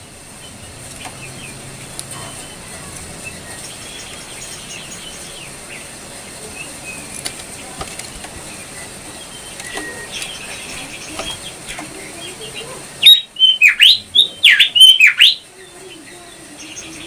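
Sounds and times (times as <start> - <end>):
steady hiss: 0.0 - 13.4
songbird chirping: 0.4 - 7.2, 8.0 - 17.0.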